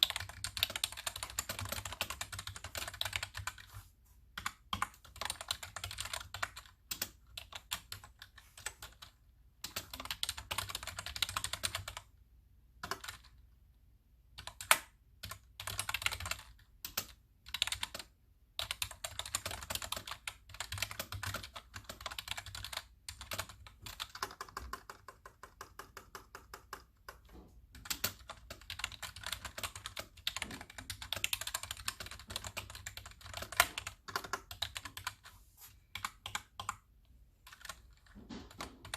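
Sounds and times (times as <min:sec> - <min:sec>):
typing on computer keyboard: 0:00.0 - 0:03.7, 0:04.4 - 0:12.1, 0:12.8 - 0:13.4, 0:14.4 - 0:35.3, 0:35.9 - 0:38.9.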